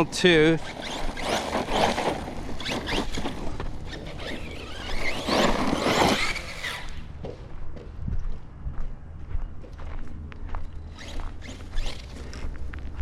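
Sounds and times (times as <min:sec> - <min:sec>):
tyre noise: 0:00.0 - 0:08.4
rc car motor whine: 0:00.4 - 0:07.1, 0:10.8 - 0:12.9.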